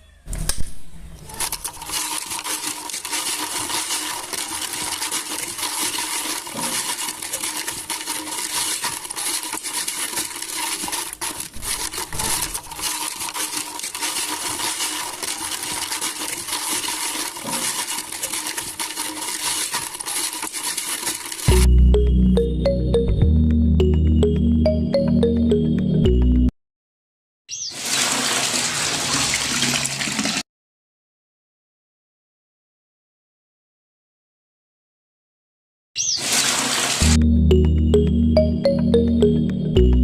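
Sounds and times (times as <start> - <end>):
small hard pieces rattling: 1.3 - 21.7.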